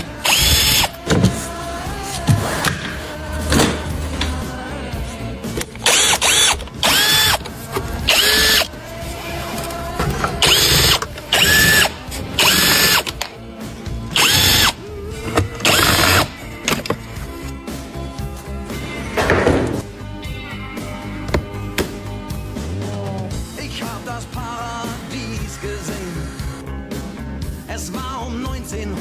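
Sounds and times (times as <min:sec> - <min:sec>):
power drill whining: 0:00.0 - 0:04.6, 0:05.5 - 0:13.3, 0:14.1 - 0:17.6, 0:24.1 - 0:26.6.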